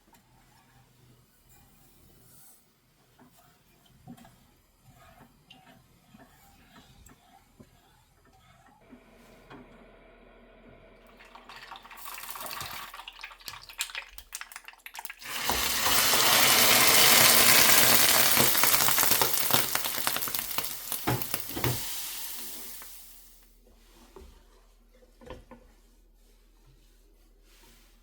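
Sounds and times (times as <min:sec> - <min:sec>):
food sizzling in frying pan: 0:11.1 - 0:23.4.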